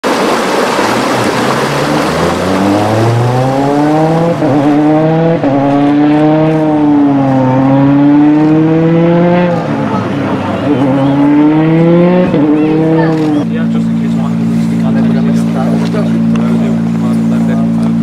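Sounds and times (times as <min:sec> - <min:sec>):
rally car engine revving: 0:00.8 - 0:18.0.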